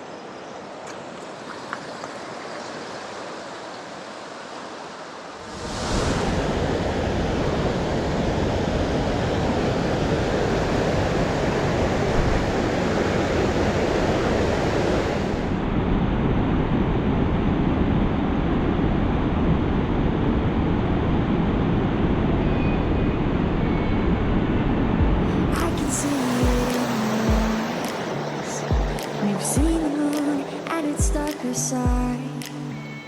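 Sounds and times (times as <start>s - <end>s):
waterfall roaring: 0.9s - 15.6s, 25.2s - 32.8s.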